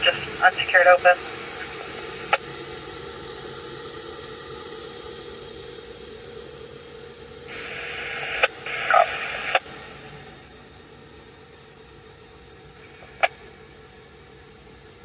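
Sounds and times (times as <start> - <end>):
radio static hiss: 0.0 - 2.4, 7.5 - 9.7.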